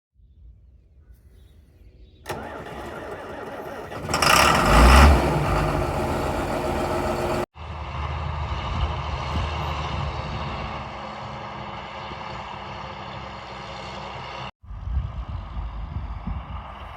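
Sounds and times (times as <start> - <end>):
tractor diesel engine starting: 2.3 - 7.5.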